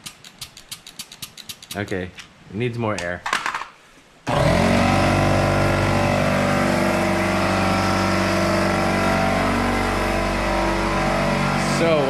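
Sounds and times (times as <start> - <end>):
air compressor motor running: 4.3 - 12.0.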